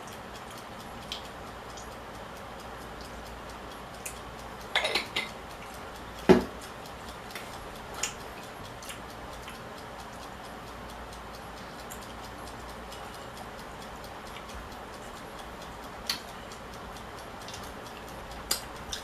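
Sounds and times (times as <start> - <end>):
steady background hiss: 0.0 - 19.0
cutlery clinking against dishes: 4.8 - 5.3.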